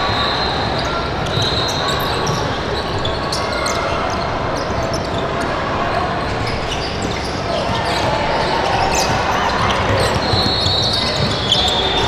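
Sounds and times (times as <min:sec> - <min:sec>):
background noise of hall: 0:00.0 - 0:12.0
basketball bouncing on gym floor: 0:07.0 - 0:12.0.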